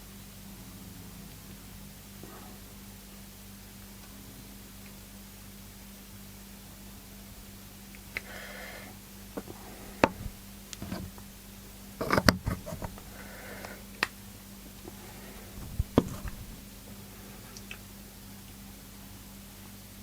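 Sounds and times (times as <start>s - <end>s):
steady low hum: 0.0s - 20.0s
small parts clicking and knocking: 12.0s - 13.0s.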